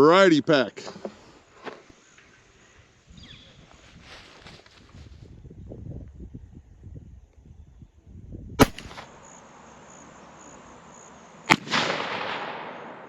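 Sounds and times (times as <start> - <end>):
rifle shots with rolling echo: 8.6 - 13.0.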